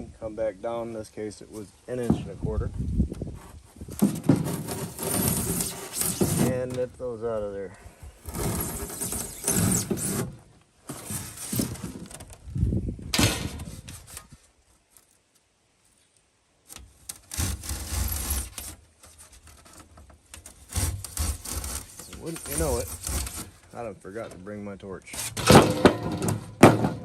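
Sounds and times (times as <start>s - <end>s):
foamboard being cut scraping: 3.2s - 6.9s, 8.2s - 12.3s, 13.3s - 14.5s, 16.7s - 26.3s.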